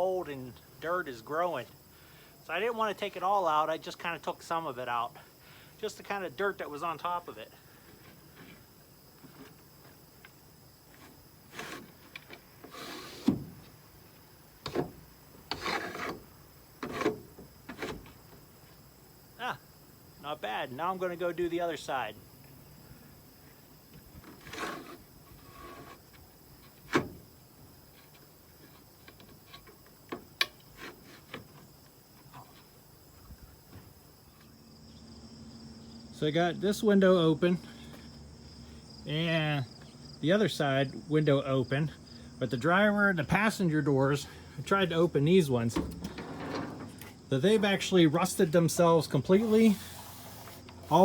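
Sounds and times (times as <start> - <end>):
sliding window glass scraping: 10.9 - 13.6, 14.6 - 18.2, 24.2 - 27.2, 46.0 - 47.1.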